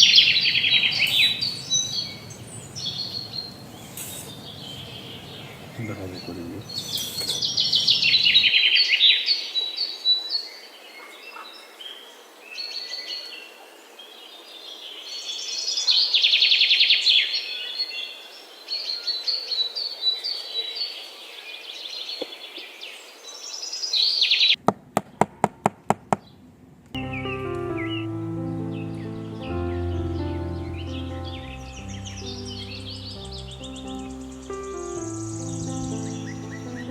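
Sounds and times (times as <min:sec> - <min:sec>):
birds chirping and trilling: 0:00.0 - 0:13.6, 0:27.0 - 0:36.9.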